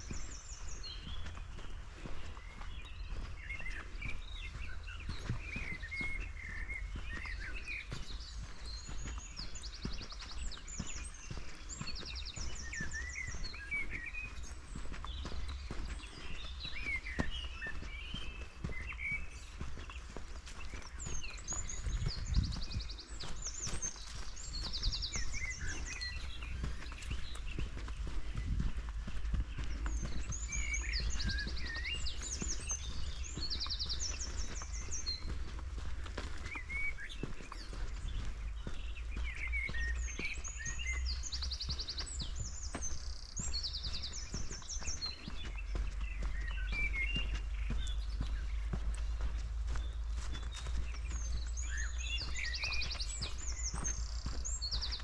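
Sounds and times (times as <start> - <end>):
footsteps on forest floor: 0.0 - 55.0
songbirds chirping and trilling: 0.0 - 55.0
steady low rumble: 20.2 - 55.0.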